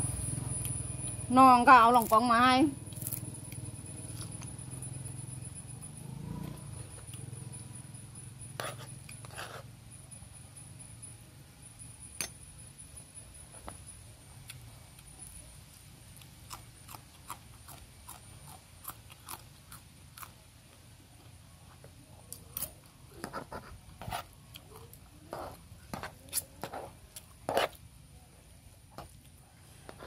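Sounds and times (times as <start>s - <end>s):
chewing and crunching: 0.6s - 5.1s, 14.4s - 20.8s, 24.0s - 27.8s.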